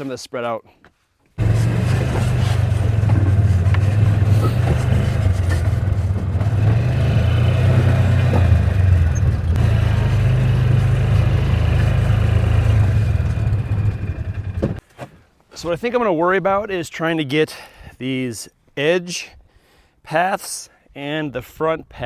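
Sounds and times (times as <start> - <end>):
light rattle: 1.4 - 9.6
small vehicle engine running: 1.4 - 14.8.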